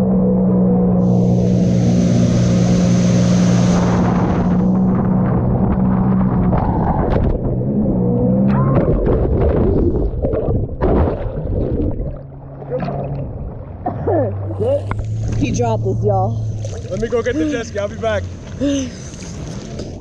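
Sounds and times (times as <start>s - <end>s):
jet ski engine drone: 0.0s - 9.4s, 12.1s - 20.0s
water splashing and sloshing: 8.4s - 20.0s.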